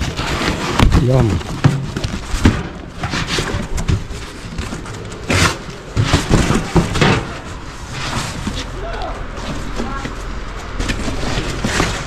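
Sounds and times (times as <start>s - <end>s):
objects knocking and clattering: 0.0s - 8.7s.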